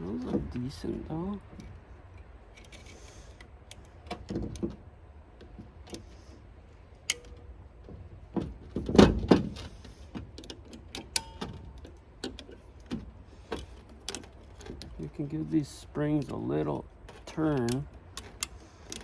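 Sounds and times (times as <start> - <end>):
metal clunk: 7.1 - 15.0
metal parts and tools clinking: 17.1 - 19.0.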